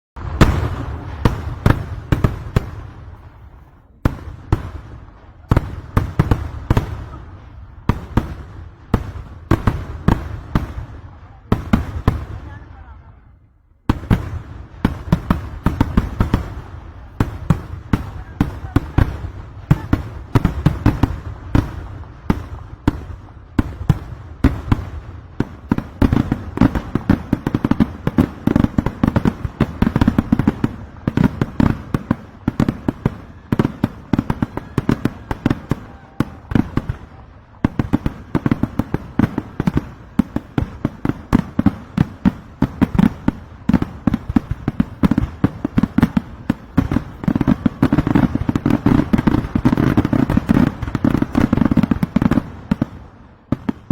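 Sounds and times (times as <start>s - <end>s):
firecracker bangs: 0.2s - 13.0s.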